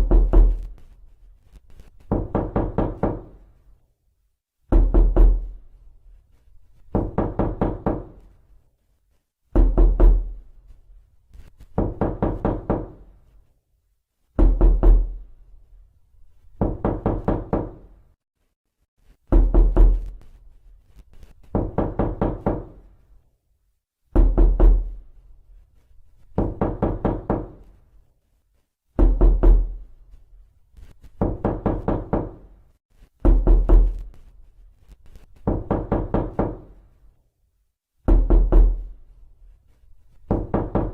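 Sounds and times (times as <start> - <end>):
heavy knocks on a door: 0.0 - 0.7, 2.1 - 3.4, 4.7 - 5.6, 6.9 - 8.2, 9.5 - 10.4, 11.8 - 13.1, 14.4 - 15.2, 16.6 - 17.9, 19.3 - 20.2, 21.5 - 22.8, 24.1 - 25.0, 26.4 - 27.7, 29.0 - 29.8, 31.2 - 32.5, 33.2 - 34.1, 35.4 - 36.8, 38.0 - 38.9, 40.3 - 40.9.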